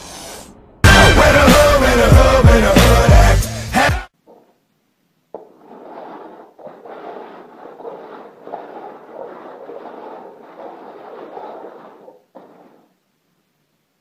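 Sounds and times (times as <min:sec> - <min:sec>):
plastic cups scraping on tile floor: 0:05.3 - 0:12.9.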